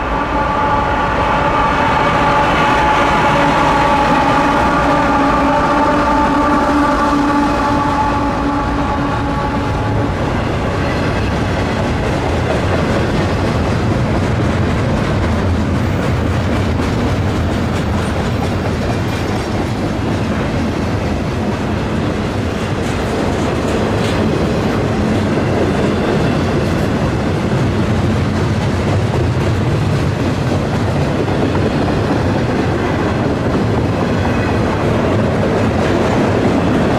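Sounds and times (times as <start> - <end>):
locomotive horn chord: 0.0 - 10.8
train wheels clacking over rails: 1.6 - 36.9.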